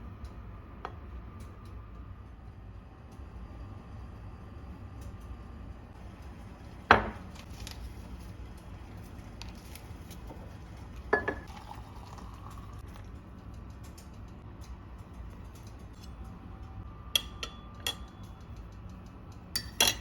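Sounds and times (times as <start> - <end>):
kitchenware clacking: 11.1 - 11.5.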